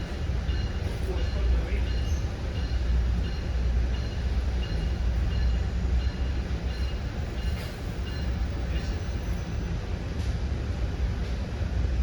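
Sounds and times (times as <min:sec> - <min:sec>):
train rumble inside coach: 0:00.0 - 0:12.0.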